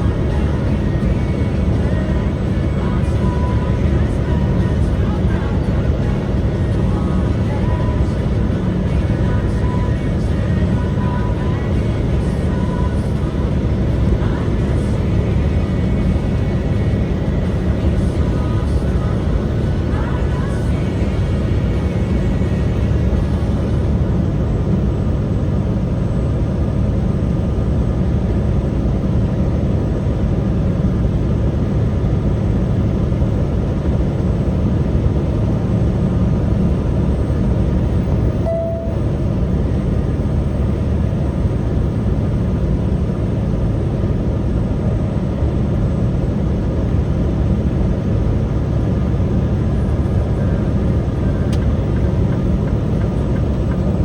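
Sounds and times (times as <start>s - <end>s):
truck engine and road noise: 0.0s - 54.0s
short tone: 38.2s - 39.7s.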